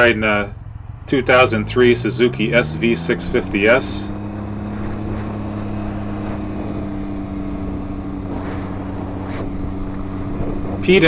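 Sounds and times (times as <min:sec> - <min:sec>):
motorcycle engine cruising hum: 0:00.0 - 0:11.0.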